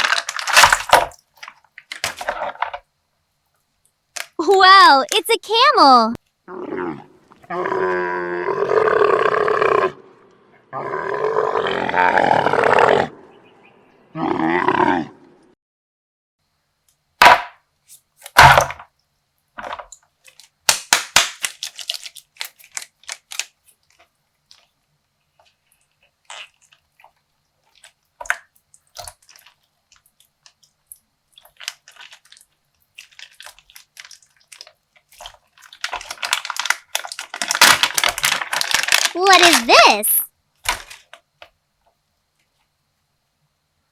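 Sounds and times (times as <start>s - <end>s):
slime bag squishing: 0.0s - 2.5s, 19.6s - 24.7s, 25.4s - 30.7s, 31.4s - 41.1s.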